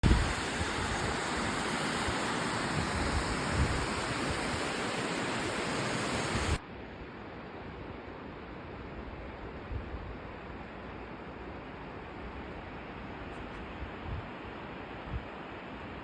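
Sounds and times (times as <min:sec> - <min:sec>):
rushing water: 0:00.0 - 0:06.6.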